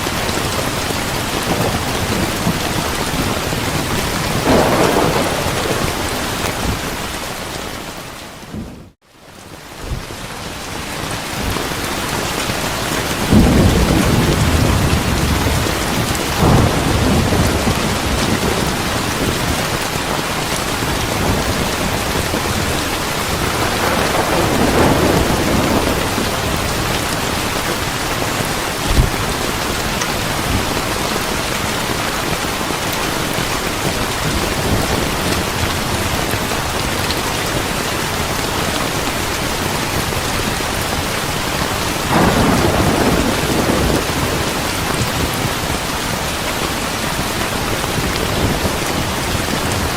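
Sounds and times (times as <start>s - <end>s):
heavy rain: 0.0s - 49.9s
rolling thunder: 0.7s - 9.0s, 13.2s - 31.6s, 41.8s - 45.9s.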